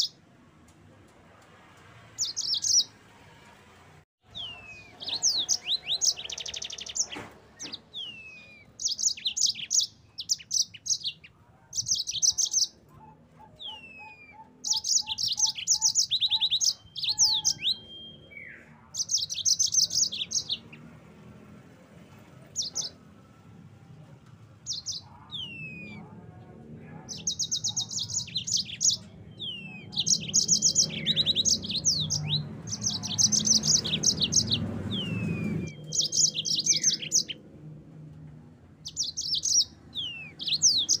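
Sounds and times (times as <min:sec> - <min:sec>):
canary singing trills: 0:00.0 - 0:00.2, 0:02.2 - 0:03.0, 0:04.2 - 0:21.0, 0:22.5 - 0:23.2, 0:24.6 - 0:37.4, 0:38.8 - 0:41.0
slurred whistle notes: 0:17.7 - 0:18.6.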